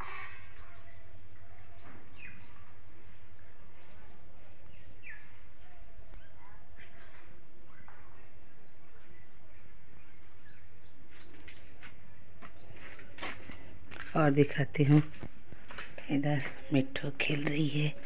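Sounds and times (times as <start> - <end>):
birds chirping and whistling: 1.7 - 5.4.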